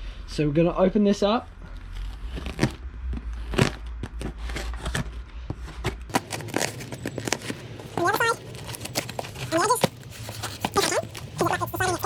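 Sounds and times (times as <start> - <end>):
knife cutting cardboard and tape: 5.7 - 12.0.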